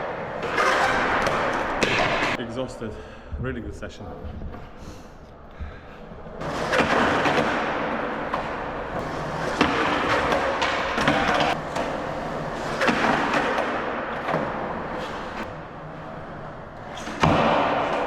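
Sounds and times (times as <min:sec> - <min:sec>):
skateboard clacks: 0:00.0 - 0:02.4, 0:06.4 - 0:15.5, 0:17.0 - 0:18.0
skateboard wheels rolling on concrete: 0:00.0 - 0:02.4, 0:05.9 - 0:18.0.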